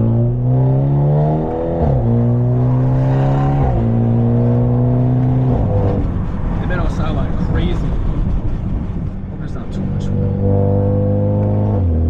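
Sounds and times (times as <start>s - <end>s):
car exhaust under acceleration: 0.0s - 12.0s.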